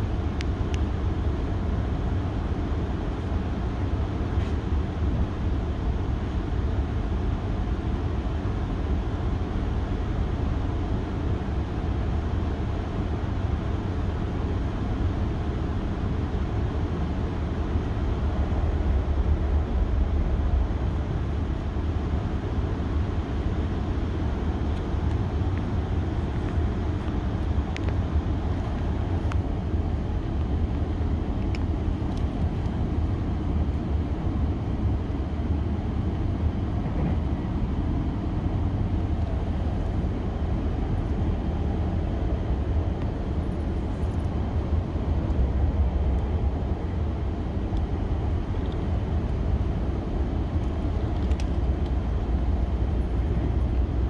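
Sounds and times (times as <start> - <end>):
train rumble: 0.0 - 54.0.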